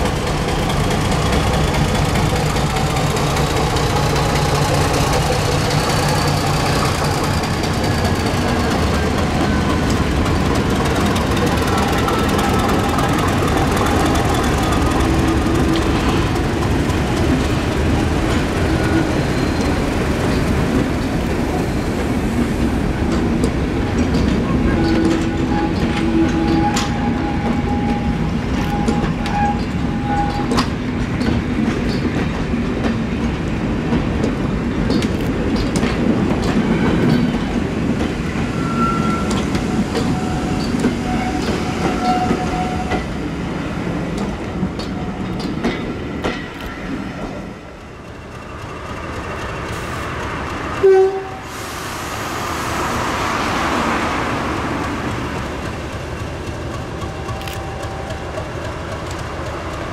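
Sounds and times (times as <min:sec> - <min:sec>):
diesel train engine and rail noise: 0:00.0 - 0:59.9
train horn blast: 0:50.8 - 0:51.6.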